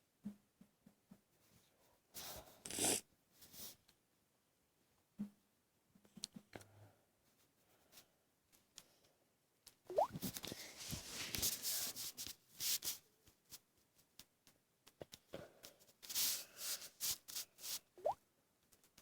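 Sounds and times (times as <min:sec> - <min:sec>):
rustling of materials: 0:10.1 - 0:15.1.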